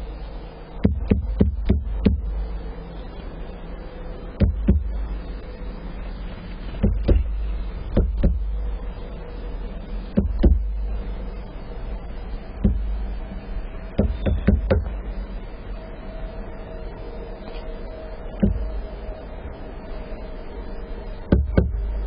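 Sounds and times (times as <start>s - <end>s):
steady low rumble: 0.0s - 22.0s
sharp knocks and taps: 8.0s - 8.4s, 10.2s - 10.6s, 14.0s - 14.9s.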